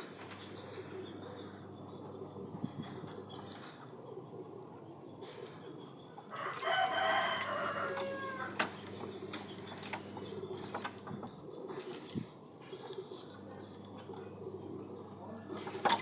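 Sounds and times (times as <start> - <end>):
rooster crowing: 6.3 - 8.8.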